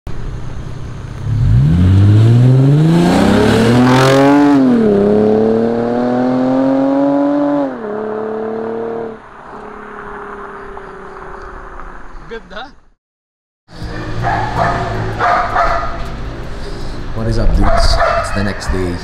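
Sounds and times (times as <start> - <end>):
car engine accelerating: 0.2 - 12.3.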